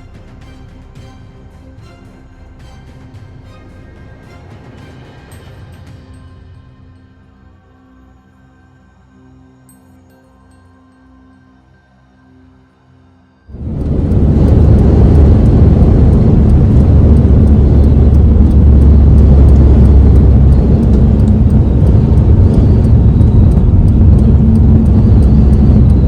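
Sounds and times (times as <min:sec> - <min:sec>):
car driving at speed: 0:13.5 - 0:26.0.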